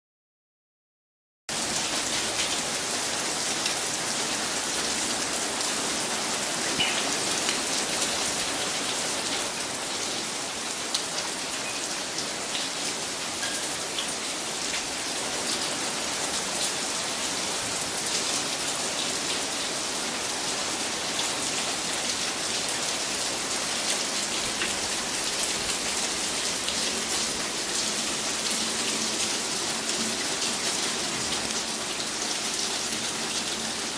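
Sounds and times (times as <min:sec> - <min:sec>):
rain falling: 0:01.5 - 0:33.9.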